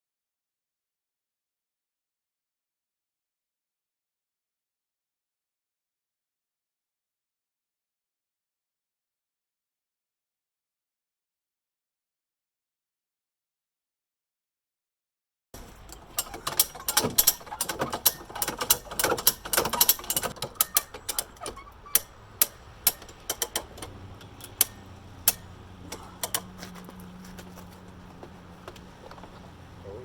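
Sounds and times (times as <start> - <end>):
hand winch ratcheting: 15.6 - 29.9.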